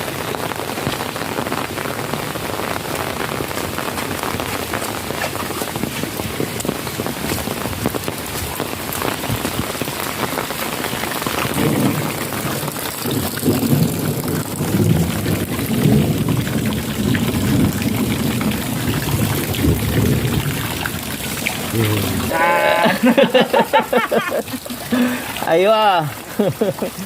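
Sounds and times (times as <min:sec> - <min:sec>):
heavy rain falling on puddles: 0:00.0 - 0:27.0
thunder rumbling: 0:02.2 - 0:23.4.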